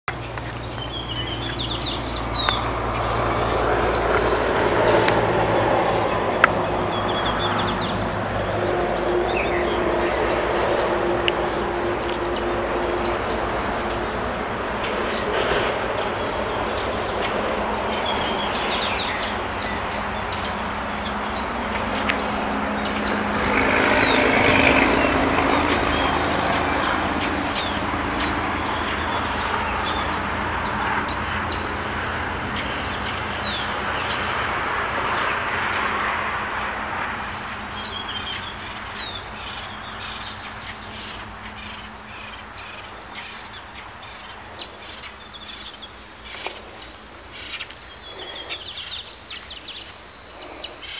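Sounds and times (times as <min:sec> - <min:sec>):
birds chirping: 0:00.0 - 0:34.4, 0:37.7 - 0:50.9
high insect drone: 0:00.1 - 0:50.9
broad rushing noise: 0:00.2 - 0:37.7.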